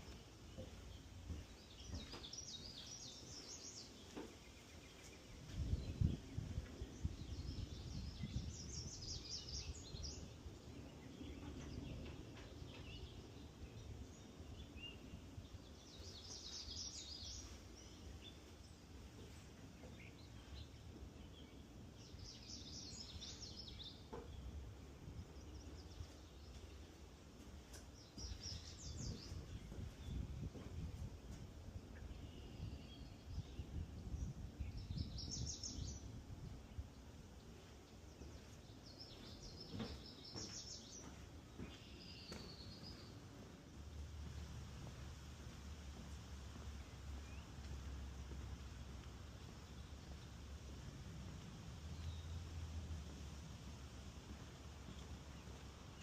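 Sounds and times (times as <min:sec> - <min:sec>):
low rumbling background noise: 0:00.0 - 0:56.0.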